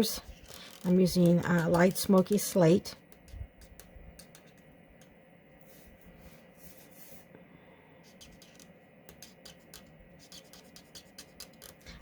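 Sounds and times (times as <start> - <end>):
marker scratching on card: 0.2 - 4.6, 8.0 - 12.0.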